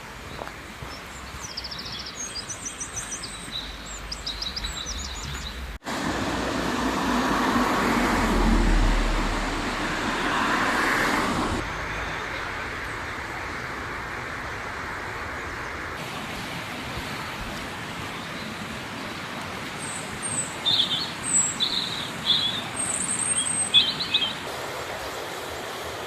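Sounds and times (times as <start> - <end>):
songbird chirping: 0.2 - 5.8, 19.8 - 24.5
river rushing: 5.8 - 26.0.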